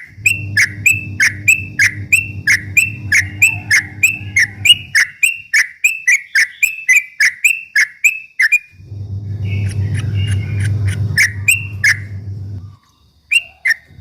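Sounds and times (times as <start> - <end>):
low steady hum: 0.0 - 5.1, 8.8 - 12.8
bird chirping notes: 0.0 - 13.9.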